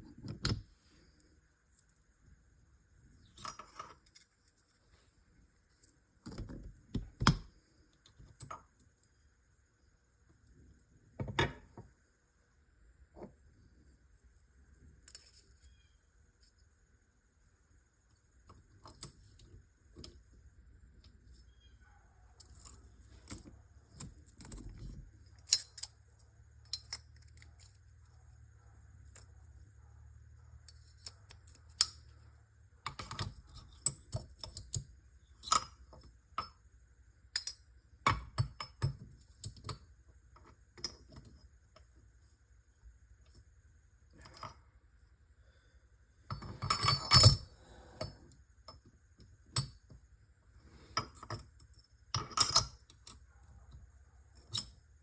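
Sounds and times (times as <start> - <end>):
metal parts clinking: 3.2 - 4.8, 22.4 - 29.6, 30.5 - 36.7, 46.3 - 50.0, 50.9 - 53.3.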